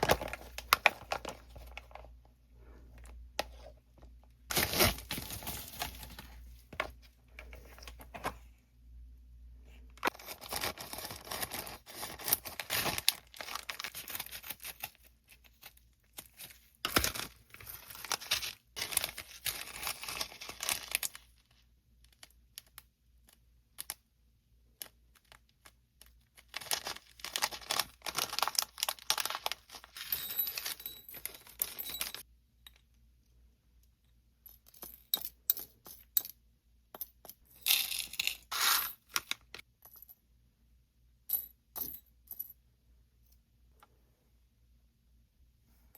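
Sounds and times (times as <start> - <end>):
packaging tearing and crinkling: 4.5 - 5.7, 10.1 - 15.0, 26.5 - 30.0, 38.5 - 38.9.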